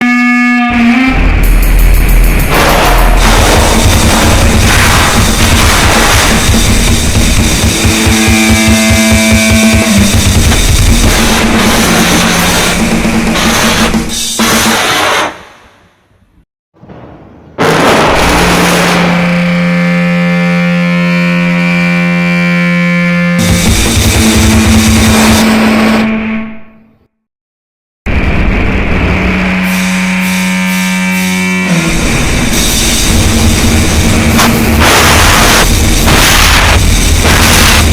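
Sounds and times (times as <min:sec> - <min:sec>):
distorted noise music: 0:00.0 - 0:15.4, 0:17.6 - 0:26.4, 0:28.1 - 0:37.9
fast pounding drums and cymbals: 0:01.2 - 0:15.3, 0:23.4 - 0:25.6, 0:29.4 - 0:37.9.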